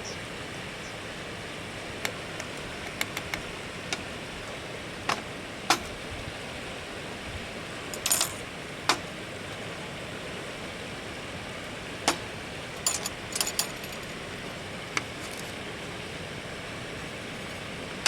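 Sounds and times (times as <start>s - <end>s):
small items clinking: 7.9s - 8.4s, 12.7s - 14.2s, 15.0s - 15.6s.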